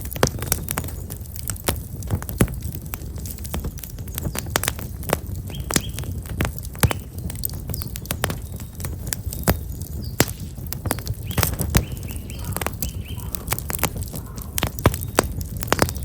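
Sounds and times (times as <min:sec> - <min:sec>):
bonfire crackling and popping: 0:00.0 - 0:16.0
small bird chirping: 0:05.4 - 0:06.2, 0:10.8 - 0:16.0.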